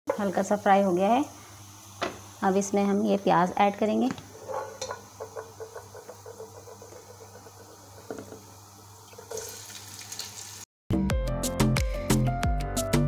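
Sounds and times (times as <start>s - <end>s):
garlic sizzling in oil: 0.1s - 10.7s
onions sizzling in oil: 0.1s - 10.7s
background music with beat: 10.9s - 13.0s.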